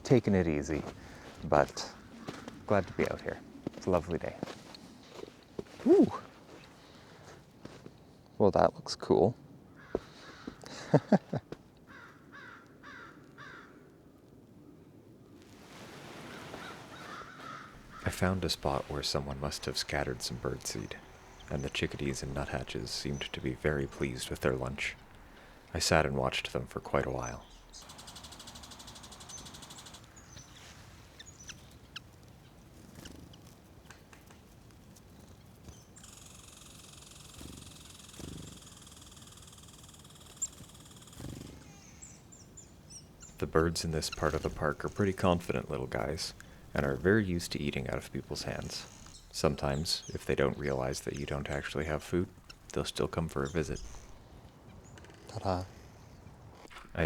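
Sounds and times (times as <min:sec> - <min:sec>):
harsh bird calls: 0:00.0 - 0:04.6, 0:09.7 - 0:11.3, 0:16.2 - 0:34.4, 0:35.0 - 0:57.0
small songbirds chirping: 0:16.3 - 0:57.0.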